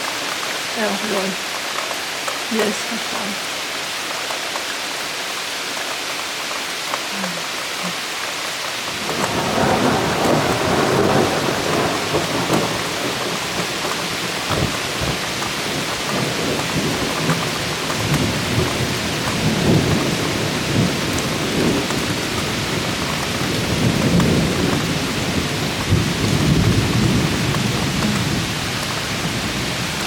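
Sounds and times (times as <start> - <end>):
heavy rain pouring: 0.0 - 30.0
thunder rumbling: 8.9 - 30.0.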